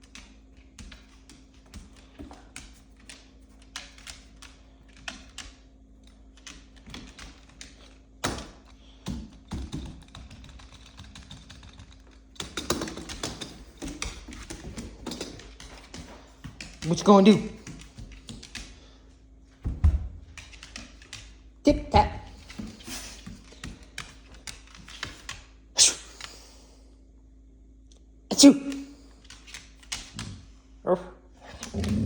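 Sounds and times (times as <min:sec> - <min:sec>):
dog paws tapping: 0:09.8 - 0:25.5.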